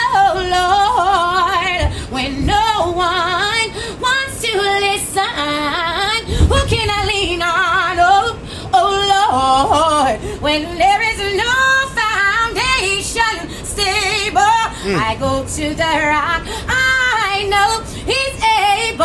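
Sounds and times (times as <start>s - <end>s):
woman singing wordless runs: 11.0s - 18.9s.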